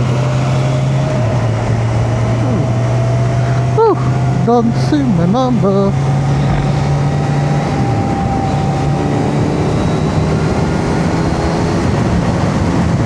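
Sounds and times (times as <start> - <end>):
motorcycle engine cruising: 0.0 - 13.0
wind noise: 0.0 - 13.0.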